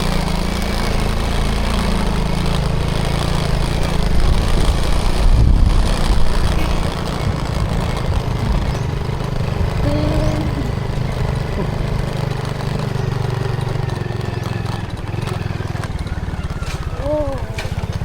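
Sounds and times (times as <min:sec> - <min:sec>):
motorcycle engine under load: 0:00.0 - 0:18.0.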